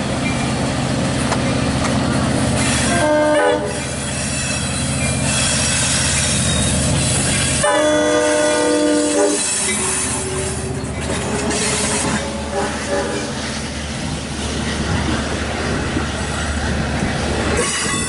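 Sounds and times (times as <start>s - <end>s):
diesel train rumbling: 0.0s - 18.0s
train wheels squealing: 2.6s - 3.0s, 3.7s - 7.6s, 8.9s - 12.4s
train horn blast: 2.8s - 3.8s, 7.6s - 10.5s, 12.1s - 13.4s.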